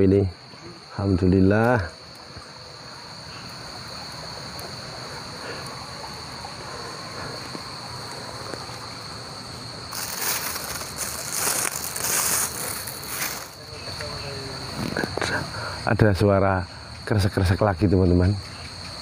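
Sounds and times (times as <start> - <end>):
crickets trilling: 0.0 - 19.0
rustling crackling noise: 9.9 - 15.3.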